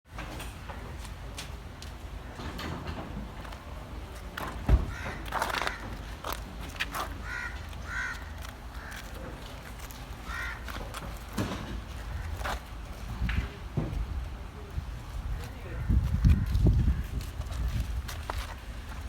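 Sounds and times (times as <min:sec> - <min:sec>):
crow cawing: 0:04.9 - 0:06.0, 0:07.2 - 0:09.1, 0:10.2 - 0:10.8
sharp knocks and clatter: 0:10.8 - 0:12.0.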